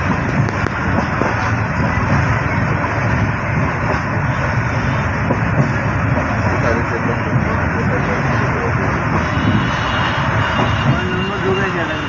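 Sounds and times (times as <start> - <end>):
wind buffeting microphone: 0.0 - 7.7
train rushing at speed: 0.0 - 12.0.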